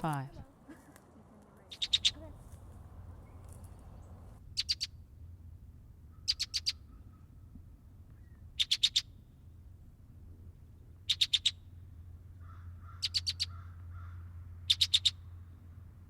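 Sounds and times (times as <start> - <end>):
blackbird calling: 1.7 - 2.5, 3.1 - 5.0, 6.1 - 7.5, 8.2 - 9.2, 11.0 - 11.7, 12.4 - 15.4.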